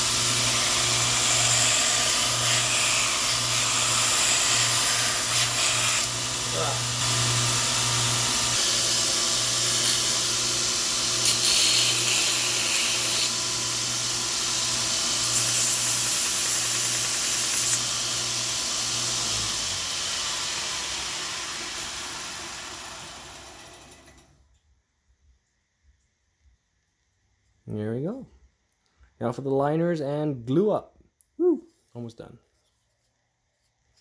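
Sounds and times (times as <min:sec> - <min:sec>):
belt sander grinding antler: 0:00.0 - 0:22.8
sander belt winding down: 0:17.8 - 0:24.2.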